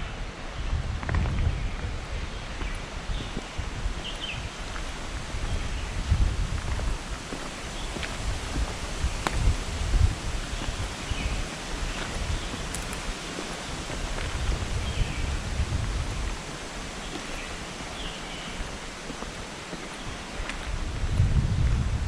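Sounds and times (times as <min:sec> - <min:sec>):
low rumbles: 0:00.0 - 0:17.5.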